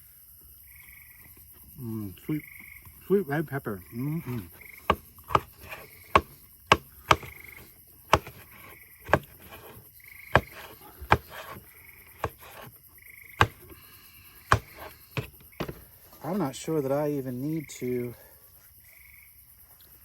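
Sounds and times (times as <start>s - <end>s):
knife chopping on cutting board: 4.9s - 11.6s, 12.2s - 12.7s, 13.4s - 13.7s, 14.5s - 15.8s.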